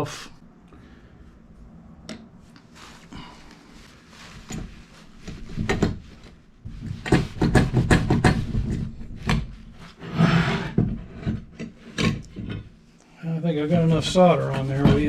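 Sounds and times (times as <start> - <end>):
objects knocking and clattering: 4.4 - 9.6, 10.7 - 12.8
rubbing or scrubbing: 13.6 - 15.0.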